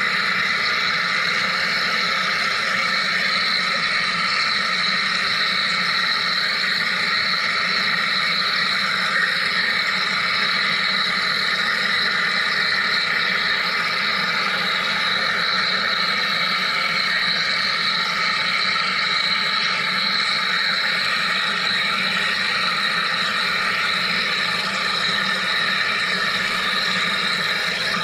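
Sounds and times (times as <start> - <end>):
machine hum and hiss: 0.0 - 28.0.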